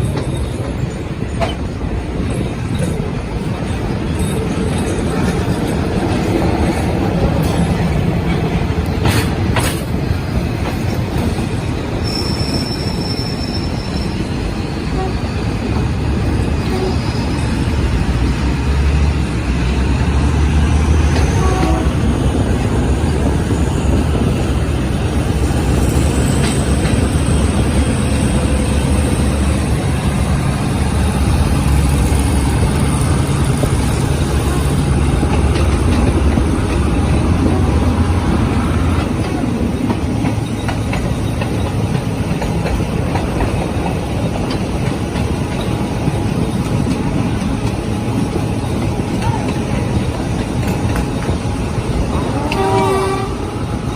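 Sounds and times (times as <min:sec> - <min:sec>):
train wheels on rails: 0:00.0 - 0:53.9.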